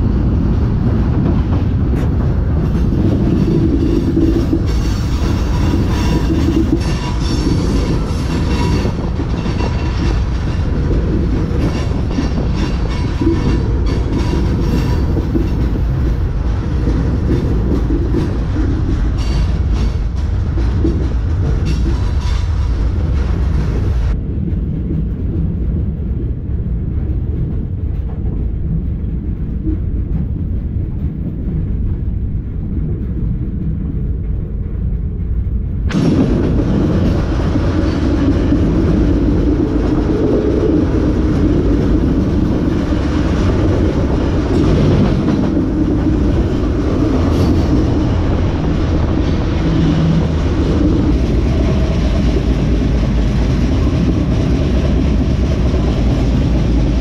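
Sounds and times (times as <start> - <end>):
freight train rumble: 0.0 - 57.0.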